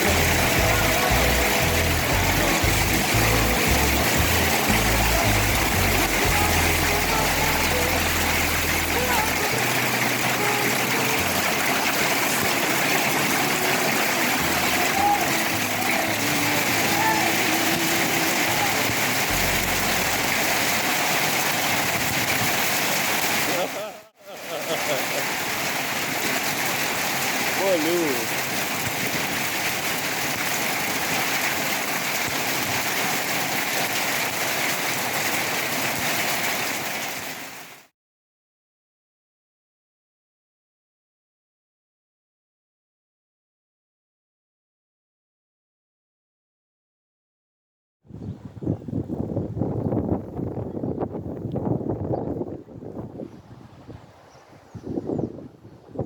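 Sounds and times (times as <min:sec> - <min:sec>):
rushing and trickling water: 0:00.0 - 0:37.9, 0:51.1 - 0:56.0
steady rain: 0:00.0 - 0:37.9.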